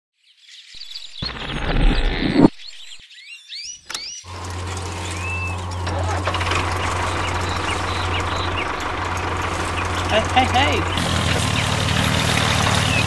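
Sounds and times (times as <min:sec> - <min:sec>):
birds chirping: 0:00.4 - 0:13.0
small electric motors whirring: 0:04.3 - 0:07.8.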